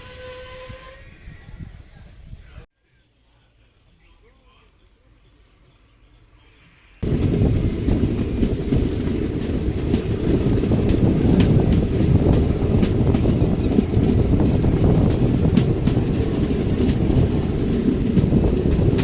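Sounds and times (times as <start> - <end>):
faint birdsong: 2.5 - 7.0
train rumbling on rails: 7.0 - 19.0
wheels clicking: 7.0 - 19.0.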